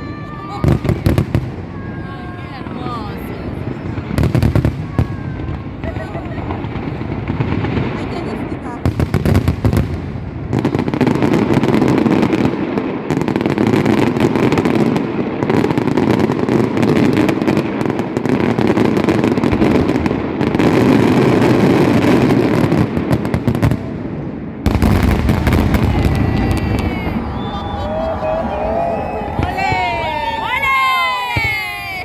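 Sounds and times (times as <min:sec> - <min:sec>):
deep firework bangs: 0:00.0 - 0:32.0
firecrackers crackling: 0:00.0 - 0:32.0.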